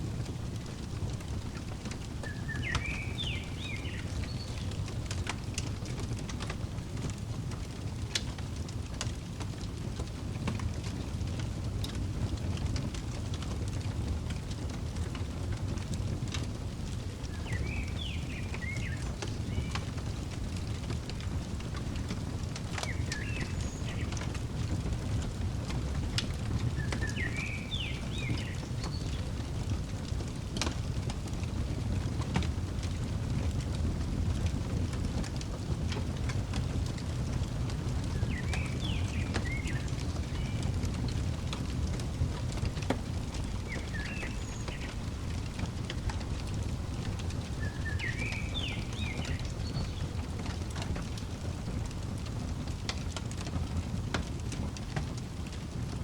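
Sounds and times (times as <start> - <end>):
wood fire crackling: 0.0 - 56.0
bird chirping: 2.2 - 4.8, 17.3 - 20.7, 22.7 - 24.4, 26.7 - 29.4, 38.1 - 40.8, 43.2 - 46.2, 47.0 - 50.2.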